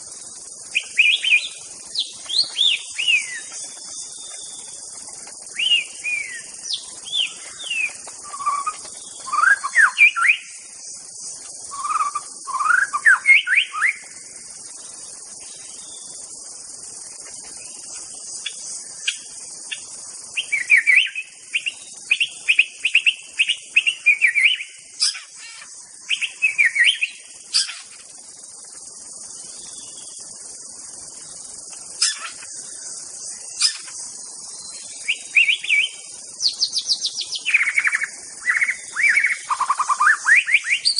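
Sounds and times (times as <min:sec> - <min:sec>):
high insect drone: 0:00.0 - 0:40.9
songbird whistling phrases: 0:05.6 - 0:10.6, 0:11.7 - 0:14.0.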